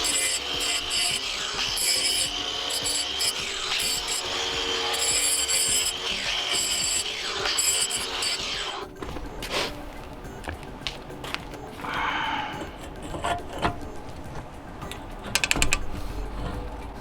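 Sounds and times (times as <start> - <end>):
hand tool scraping pipe: 0.0 - 8.8.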